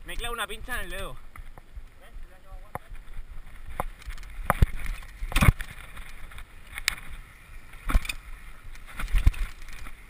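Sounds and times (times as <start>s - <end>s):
bike rumble on rough trail: 0.0s - 10.0s
bike clanks and knocks: 3.6s - 7.1s, 7.8s - 10.0s.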